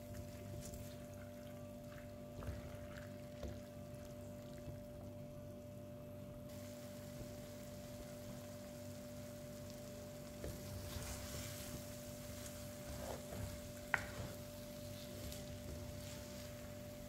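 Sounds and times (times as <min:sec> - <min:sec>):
faint sizzling: 0:00.0 - 0:17.0
steady low hum: 0:00.0 - 0:17.0
wooden spoon scraping pot: 0:10.4 - 0:14.4.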